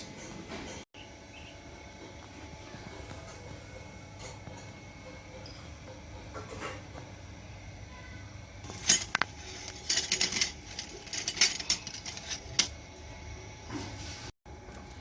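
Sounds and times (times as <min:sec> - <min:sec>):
metal parts clinking: 0:08.6 - 0:12.8.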